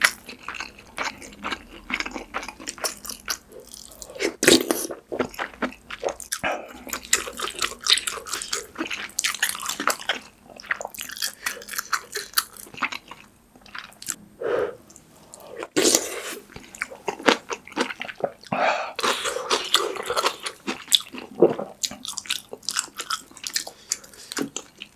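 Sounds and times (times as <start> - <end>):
wet chewing with crunches: 0.0 - 14.2.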